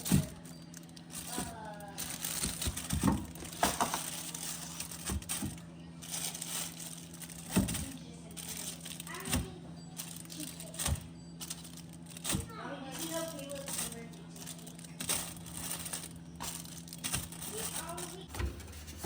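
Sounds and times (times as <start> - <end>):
crinkly rustling: 0.0 - 19.0
steady low hum: 0.0 - 19.0
knocks of objects handled: 1.1 - 5.6, 7.4 - 8.0.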